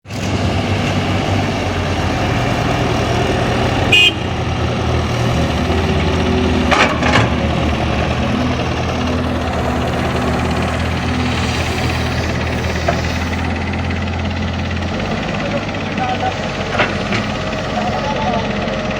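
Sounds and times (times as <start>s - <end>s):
heavy machine diesel engines rumbling: 0.0s - 18.9s
high horn toot: 3.9s - 4.4s.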